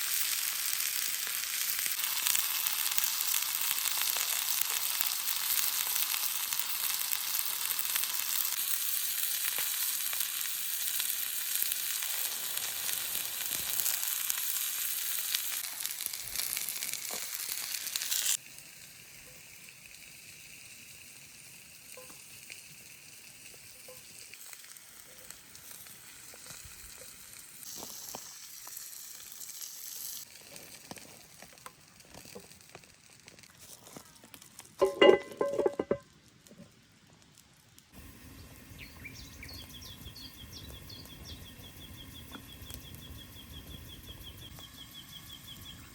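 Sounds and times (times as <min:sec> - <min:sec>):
food sizzling on hot stone: 0:00.0 - 0:45.9
small crackles: 0:00.0 - 0:45.9.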